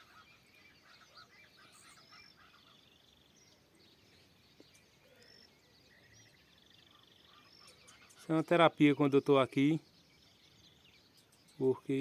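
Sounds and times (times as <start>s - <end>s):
bird whistles and trills: 0.0s - 2.8s.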